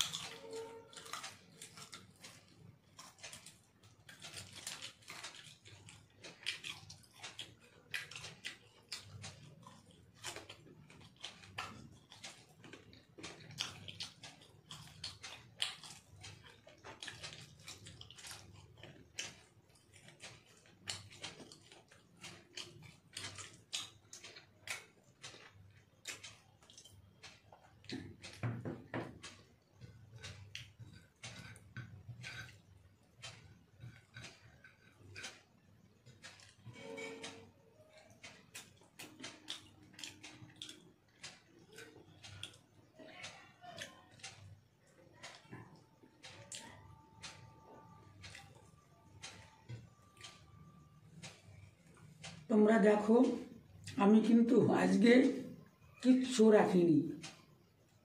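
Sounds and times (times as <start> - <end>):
wet chewing: 0.0 - 52.5.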